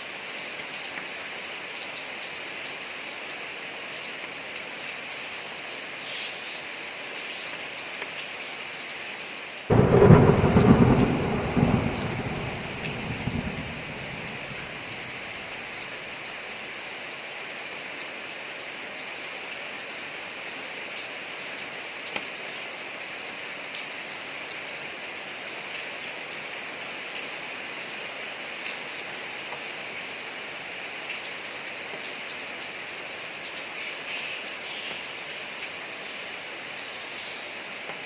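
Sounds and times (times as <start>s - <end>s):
rain falling on street: 0.0s - 38.0s
single raindrops ticking: 9.7s - 15.9s.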